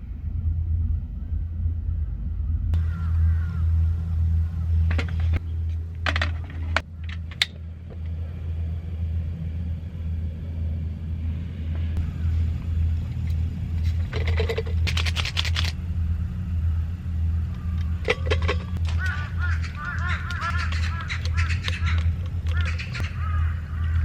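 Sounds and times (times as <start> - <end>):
steady low hum: 0.0 - 24.0
bursts of clicks: 13.9 - 15.8, 17.5 - 24.0
repeated chirping calls: 18.6 - 24.0.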